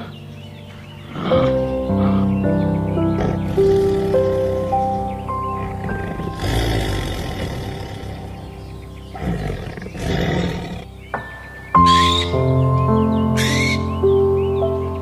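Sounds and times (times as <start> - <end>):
calm background music: 0.0 - 15.0.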